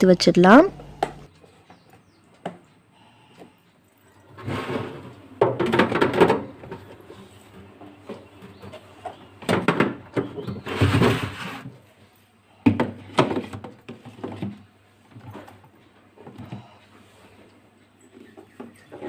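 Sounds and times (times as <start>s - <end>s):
basket scraping slide: 4.4s - 5.3s, 10.6s - 11.8s
plastic baskets knocking: 5.4s - 7.0s.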